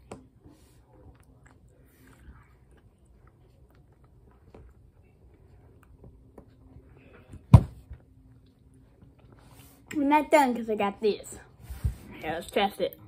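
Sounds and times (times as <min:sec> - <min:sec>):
chewing gummy candy: 0:00.8 - 0:07.2
loud thump: 0:07.5 - 0:07.8.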